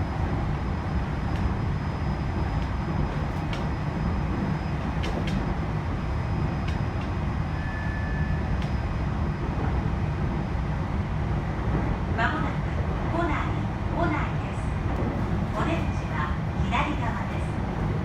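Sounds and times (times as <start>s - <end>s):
train wheels and motors rumbling: 0.0s - 18.0s.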